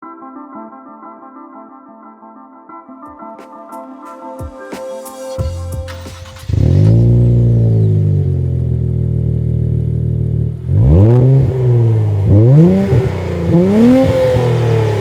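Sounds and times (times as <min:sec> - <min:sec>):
car engine starting and idling: 0:05.5 - 0:15.0
engine rev blip: 0:05.9 - 0:08.8, 0:10.6 - 0:15.0.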